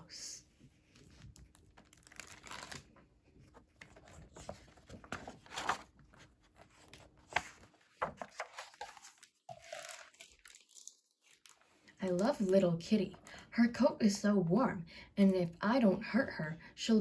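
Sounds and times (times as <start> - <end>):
book pages turning: 0.8 - 11.8.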